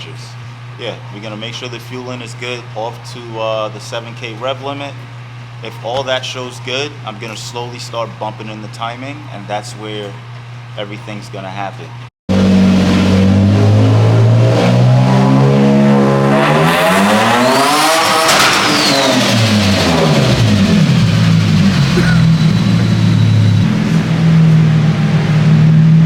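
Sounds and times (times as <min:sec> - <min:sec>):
car engine revving: 0:12.3 - 0:26.0
high turbo whistle: 0:12.3 - 0:26.0.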